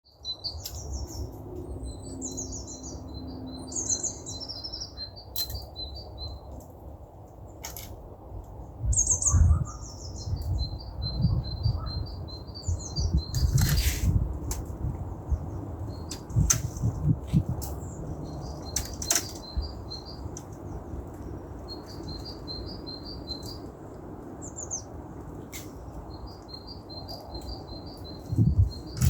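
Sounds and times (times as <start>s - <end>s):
songbird trilling: 8.9s - 14.0s.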